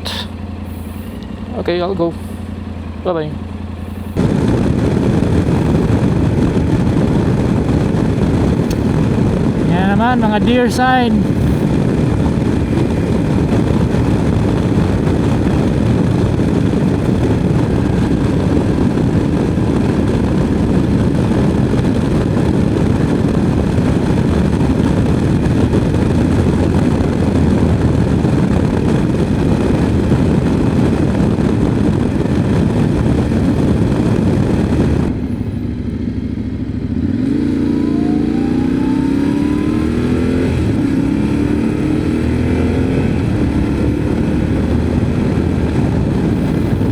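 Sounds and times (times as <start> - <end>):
motorcycle engine: 0.0 - 46.9
wind rush: 3.9 - 35.9, 36.5 - 46.9.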